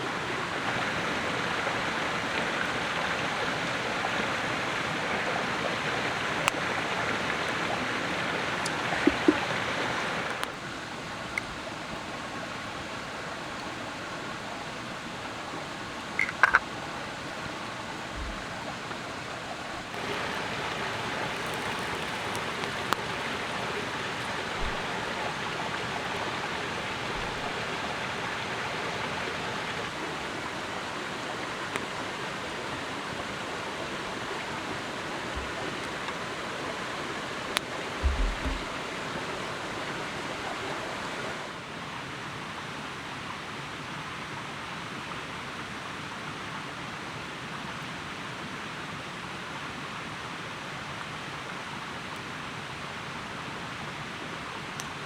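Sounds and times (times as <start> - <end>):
faint knocks: 38.0 - 38.8.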